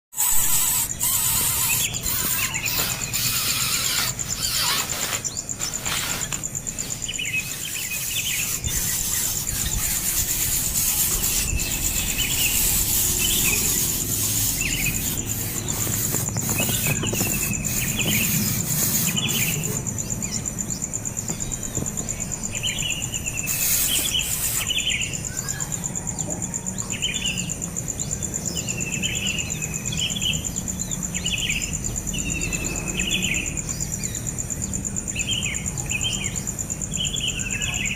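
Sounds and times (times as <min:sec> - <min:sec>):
high-pitched insect drone: 0:00.1 - 0:37.9.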